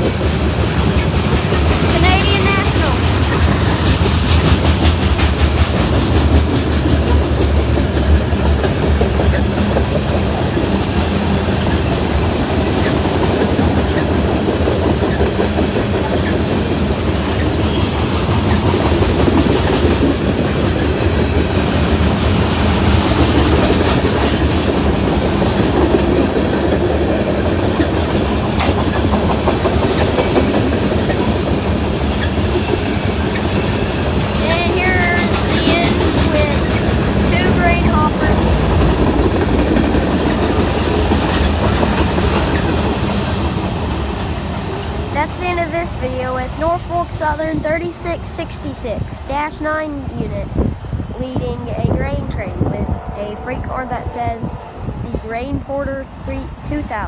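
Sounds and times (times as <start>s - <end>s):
wheels clicking over rail joints: 0.0s - 45.6s
freight train rumbling past: 0.0s - 57.0s.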